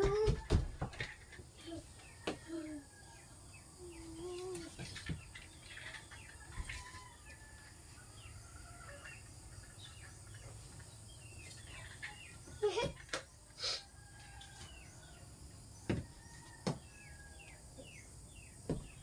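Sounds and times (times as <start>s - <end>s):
birds chirping: 0.0s - 15.2s.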